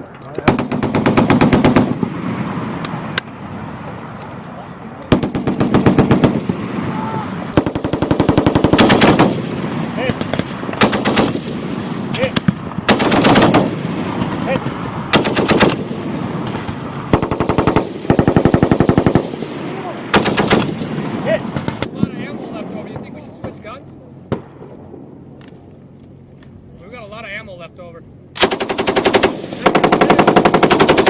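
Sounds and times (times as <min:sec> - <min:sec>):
machine gun bursts: 0:07.6 - 0:09.4, 0:10.8 - 0:11.6, 0:12.9 - 0:13.7, 0:15.2 - 0:16.0, 0:20.2 - 0:20.9, 0:28.4 - 0:31.0.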